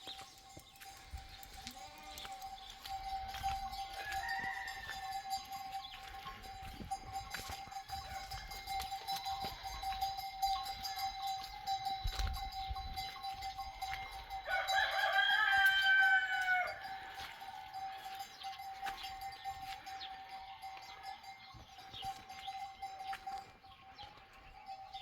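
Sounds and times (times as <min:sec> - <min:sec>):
rooster crowing: 0:03.8 - 0:05.5, 0:14.4 - 0:17.7.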